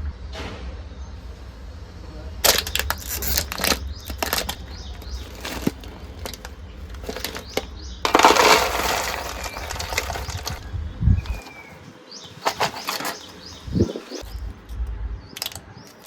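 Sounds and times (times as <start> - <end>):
plastic snack packet crinkling: 2.4 - 10.6.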